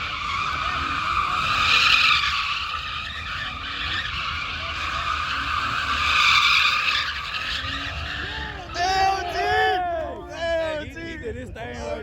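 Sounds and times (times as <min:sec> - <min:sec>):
tires screeching on pavement: 0:00.0 - 0:09.4.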